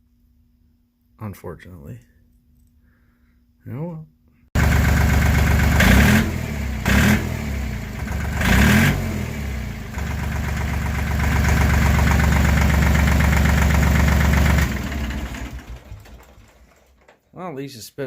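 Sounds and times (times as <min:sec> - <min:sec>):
tractor diesel engine running: 0:04.6 - 0:17.1.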